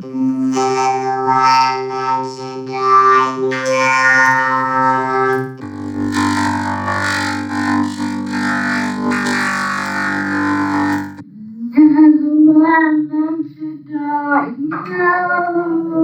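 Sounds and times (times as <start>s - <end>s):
low drone with pulsing tones: 0.0s - 11.2s
synthesizer sustained tones: 0.0s - 11.2s.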